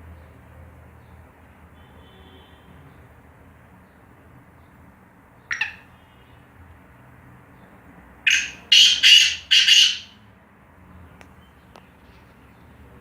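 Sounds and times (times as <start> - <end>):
bird calling harsh notes: 5.5 - 5.9, 8.3 - 10.2.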